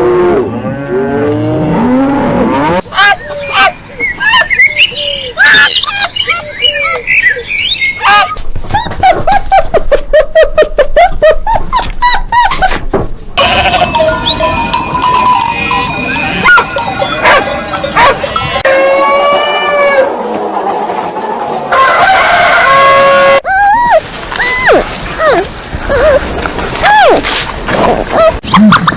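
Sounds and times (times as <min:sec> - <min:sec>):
high chirping calls: 0:03.1 - 0:08.3
bell-like tones: 0:13.4 - 0:19.9
rooster crowing: 0:18.6 - 0:20.2, 0:21.7 - 0:23.4.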